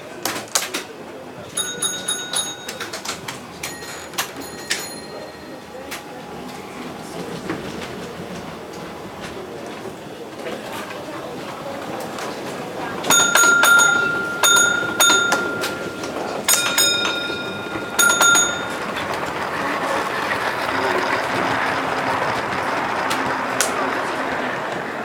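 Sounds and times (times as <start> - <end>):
model train running: 0.0 - 25.0
signal box bells ringing: 1.6 - 6.3, 13.1 - 20.0.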